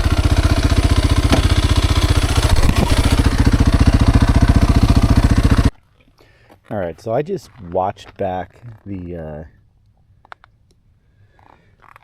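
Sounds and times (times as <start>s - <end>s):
dirt bike engine idling: 0.0s - 5.7s.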